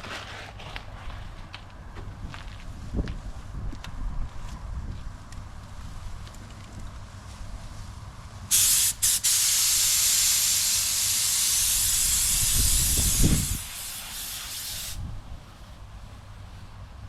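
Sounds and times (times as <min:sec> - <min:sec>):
spray gun hissing: 0:08.5 - 0:15.0.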